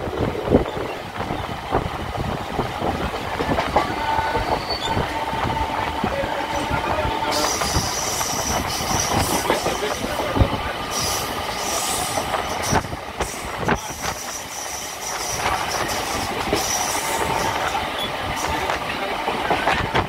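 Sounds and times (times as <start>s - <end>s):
train wheels clacking over rail joints: 7.3s - 20.0s.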